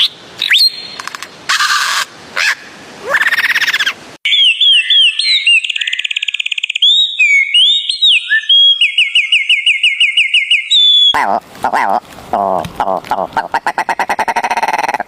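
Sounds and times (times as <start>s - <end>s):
whistled bird notes: 3.2s - 11.2s
songbird chirps and trills: 3.3s - 11.2s.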